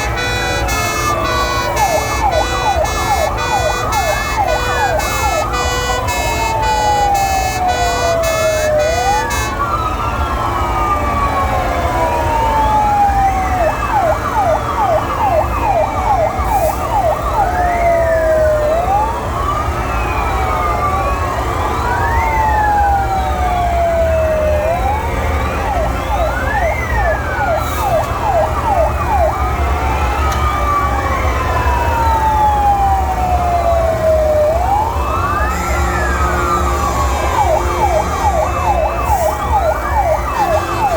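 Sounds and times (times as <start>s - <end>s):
pulsing horn-like tone: 0.0s - 9.6s, 35.4s - 39.5s
fire truck sirens wailing: 0.0s - 40.9s.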